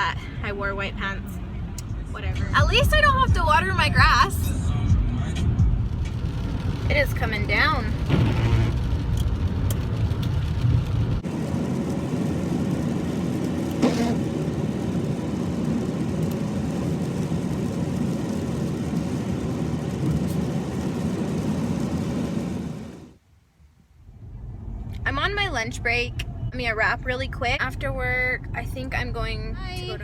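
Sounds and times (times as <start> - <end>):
road and engine rumble: 0.0 - 30.0
rain hiss: 5.8 - 23.2.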